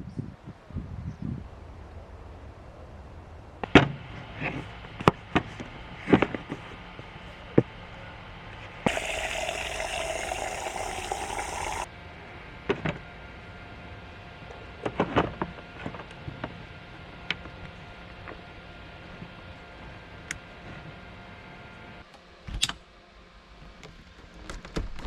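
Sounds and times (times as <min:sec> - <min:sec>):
water running from a tap: 0:08.9 - 0:11.9.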